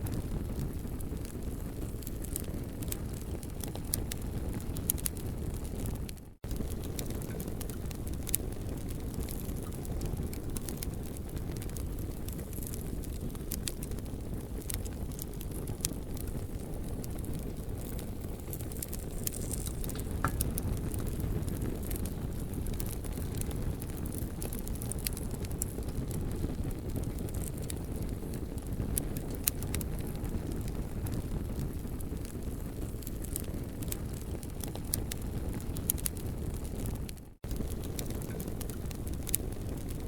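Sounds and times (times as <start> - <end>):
campfire crackling: 0.0 - 40.0
sharp pops: 18.5 - 22.1.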